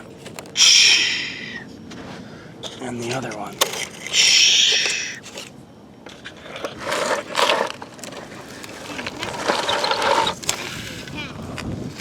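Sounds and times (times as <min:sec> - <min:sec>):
plastic toy scraping in sand: 0:06.1 - 0:11.2.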